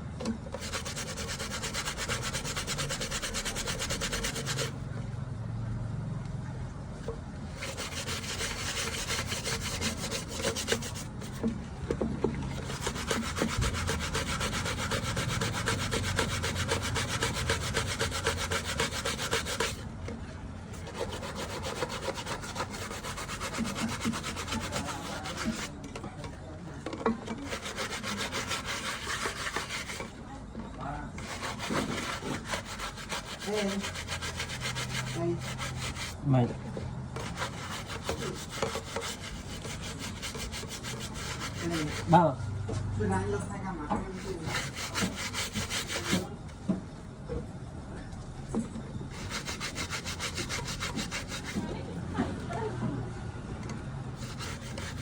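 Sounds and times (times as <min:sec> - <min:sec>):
scrubbing on a laptop screen: 0:00.6 - 0:04.8, 0:07.6 - 0:11.5, 0:12.5 - 0:19.8, 0:20.8 - 0:25.8, 0:27.3 - 0:30.1, 0:31.2 - 0:36.2, 0:37.2 - 0:42.2, 0:44.1 - 0:46.3, 0:49.2 - 0:51.7, 0:54.2 - 0:55.0.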